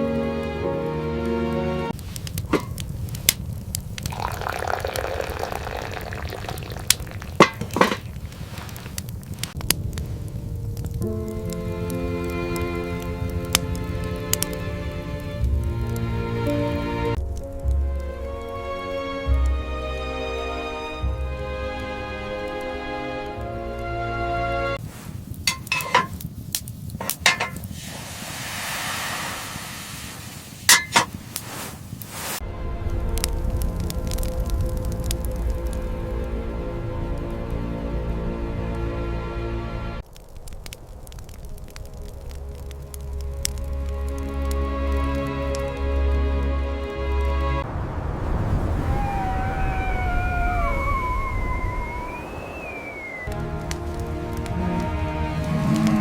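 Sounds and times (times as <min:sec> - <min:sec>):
background music: 0:00.0 - 0:02.0, 0:09.6 - 0:24.8, 0:32.4 - 0:40.0, 0:42.2 - 0:47.6, 0:53.3 - 0:56.0
liquid pouring: 0:04.0 - 0:09.0
dishes clicking and knocking: 0:07.3 - 0:08.1, 0:25.5 - 0:26.2, 0:27.0 - 0:27.6, 0:30.7 - 0:31.1
sharp clinks and knocks: 0:25.5 - 0:26.2.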